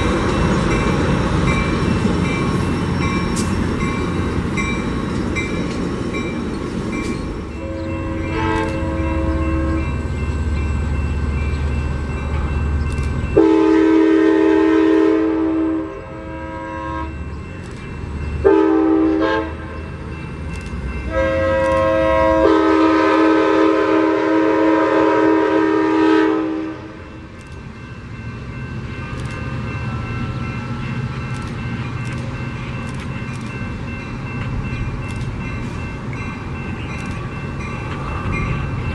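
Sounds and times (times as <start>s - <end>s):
engine and wheels rumbling: 0.0s - 24.4s, 26.5s - 38.9s
train air horn blasts: 7.5s - 10.0s, 13.4s - 17.2s, 18.4s - 19.8s, 21.1s - 27.2s.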